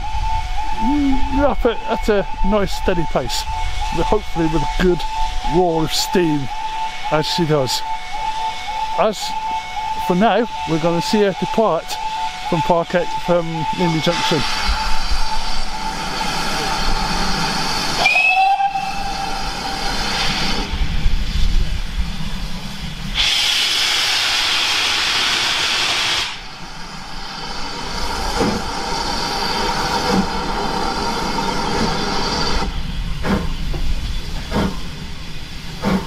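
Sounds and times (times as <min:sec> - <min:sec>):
steam locomotive whistle: 0:00.0 - 0:20.8, 0:23.1 - 0:26.5
locomotive exhaust beats: 0:00.0 - 0:36.0
steam hissing: 0:00.2 - 0:36.0.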